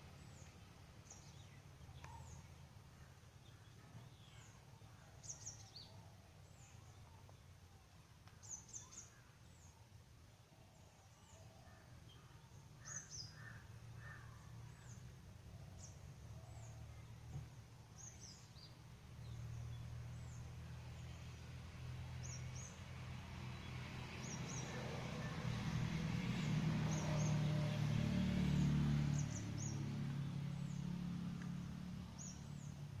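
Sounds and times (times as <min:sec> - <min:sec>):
small birds chirping: 0:00.1 - 0:10.0, 0:10.6 - 0:21.5, 0:22.1 - 0:33.0
low outdoor rumble: 0:11.2 - 0:33.0.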